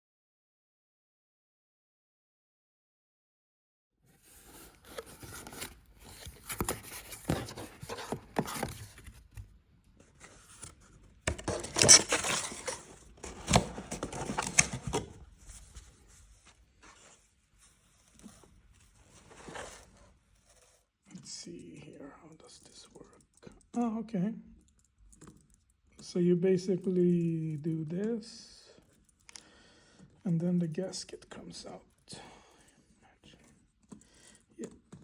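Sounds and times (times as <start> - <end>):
cardboard and paper tearing: 10.4 - 15.2.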